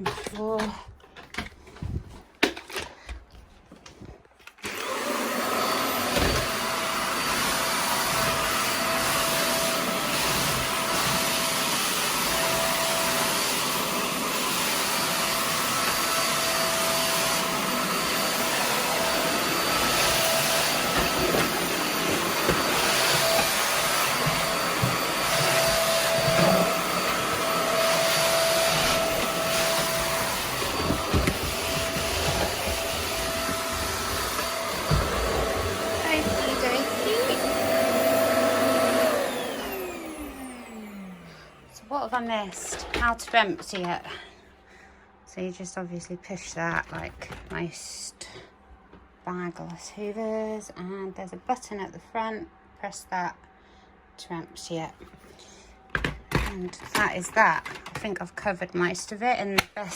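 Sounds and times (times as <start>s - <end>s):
vacuum cleaner running: 4.6s - 44.3s, 56.0s - 59.9s.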